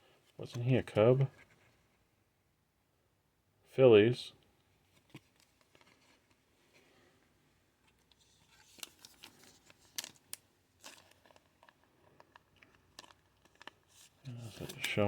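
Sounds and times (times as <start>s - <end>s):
trading cards being handled: 7.8s - 15.0s.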